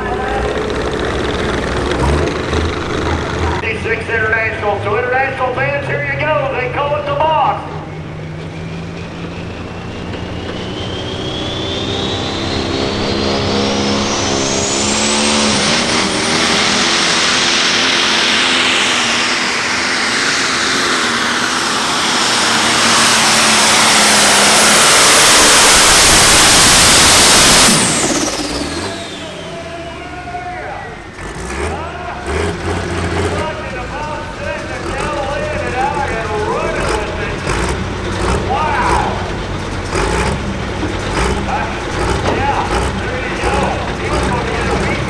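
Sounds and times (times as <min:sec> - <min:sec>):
tractor engine under load: 0:00.0 - 0:45.0
turbocharger whine: 0:00.0 - 0:45.0.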